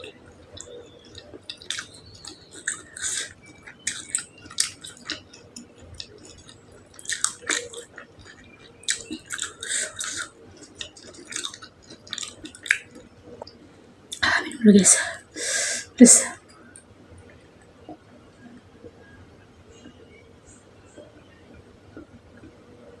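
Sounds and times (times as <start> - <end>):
wet chewing and biting smacks: 0.6 - 13.6.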